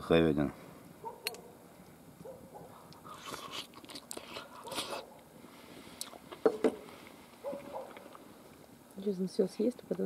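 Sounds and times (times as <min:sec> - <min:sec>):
man chewing food wetly: 0:02.8 - 0:05.3.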